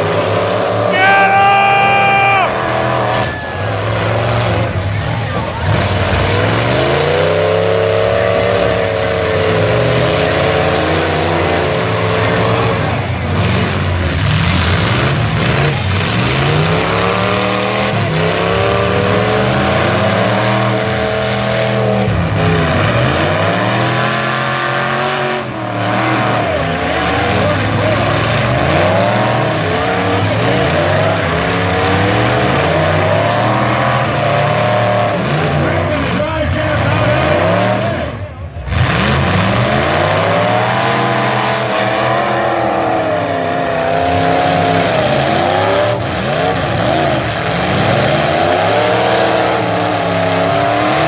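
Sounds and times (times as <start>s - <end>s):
truck engines revving: 0.0s - 51.0s.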